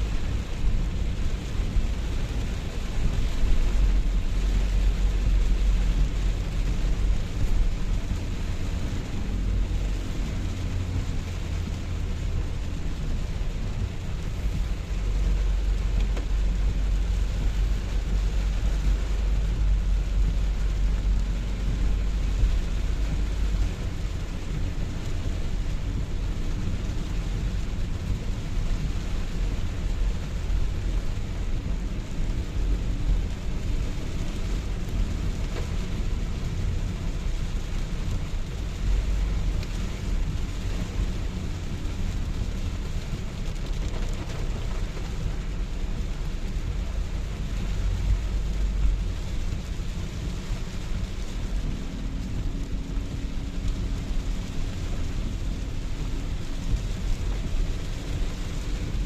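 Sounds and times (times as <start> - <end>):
deep low rumble: 0.0 - 59.0
rain falling: 0.0 - 59.0.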